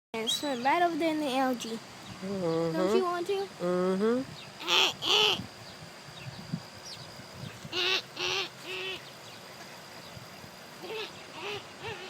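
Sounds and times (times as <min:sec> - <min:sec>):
ducks quacking: 0:04.6 - 0:05.4, 0:07.7 - 0:09.1, 0:10.8 - 0:12.0.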